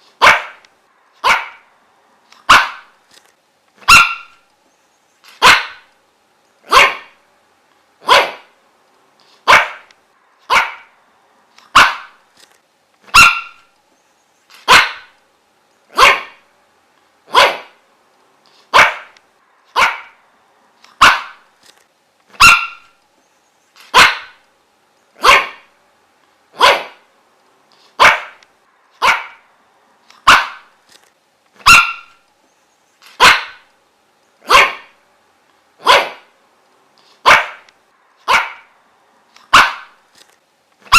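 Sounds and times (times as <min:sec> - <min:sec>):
dog barking: 0:00.2 - 0:00.6, 0:01.2 - 0:01.7, 0:02.4 - 0:02.9, 0:03.8 - 0:04.4, 0:05.4 - 0:05.9, 0:06.7 - 0:07.2, 0:08.0 - 0:08.6, 0:09.4 - 0:09.9, 0:10.5 - 0:11.0, 0:11.7 - 0:12.2, 0:13.1 - 0:13.7, 0:14.6 - 0:15.2, 0:15.9 - 0:16.4, 0:17.3 - 0:17.8, 0:18.7 - 0:20.2, 0:21.0 - 0:21.4, 0:22.4 - 0:23.0, 0:23.9 - 0:24.4, 0:25.2 - 0:25.7, 0:26.5 - 0:27.1, 0:28.0 - 0:28.4, 0:29.0 - 0:29.5, 0:30.2 - 0:30.7, 0:31.6 - 0:32.2, 0:33.2 - 0:33.7, 0:34.4 - 0:35.0, 0:35.8 - 0:36.3, 0:37.2 - 0:38.7, 0:39.5 - 0:40.0.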